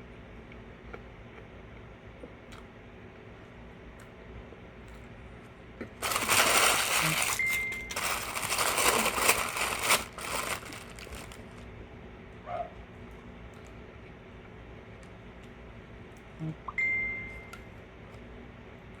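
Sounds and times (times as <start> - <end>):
paper wrapper crinkling: 6.0 - 11.6.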